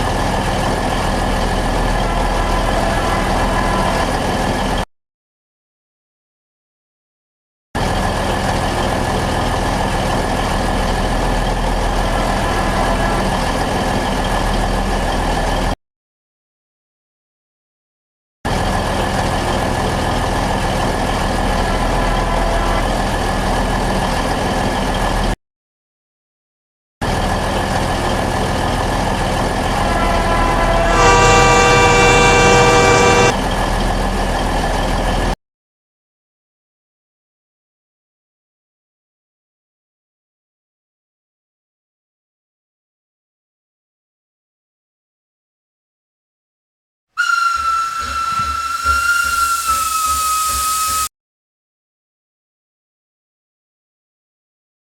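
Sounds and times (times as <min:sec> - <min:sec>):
locomotive engine drone: 0:00.0 - 0:04.8, 0:07.8 - 0:15.8, 0:18.5 - 0:25.4, 0:27.0 - 0:35.4
locomotive horn blast: 0:00.9 - 0:04.6, 0:11.8 - 0:14.4, 0:19.7 - 0:24.5, 0:29.2 - 0:33.5, 0:47.2 - 0:51.0
high whine: 0:29.6 - 0:33.4.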